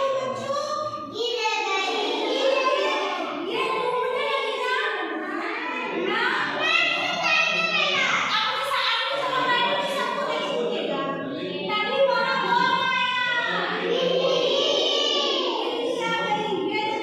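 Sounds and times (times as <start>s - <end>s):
children chanting: 1.7s - 8.4s, 13.4s - 17.0s.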